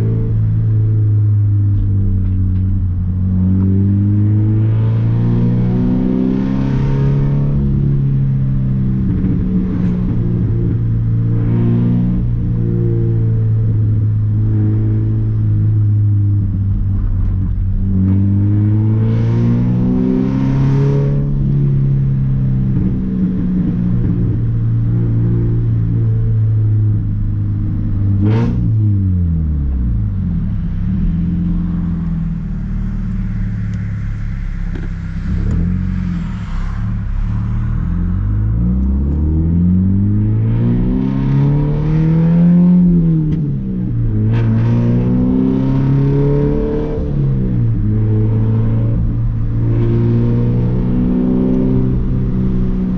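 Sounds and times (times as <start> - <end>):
car exhaust note rising and falling: 0.0 - 52.9
exhaust crack: 30.0 - 40.1.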